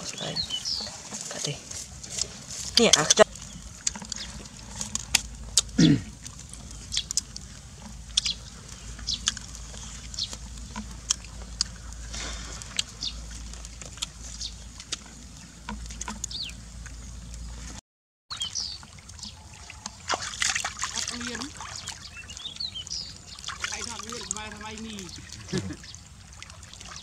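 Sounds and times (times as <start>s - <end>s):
wood fire crackling: 0.0s - 17.6s
birds chirping: 0.0s - 27.0s.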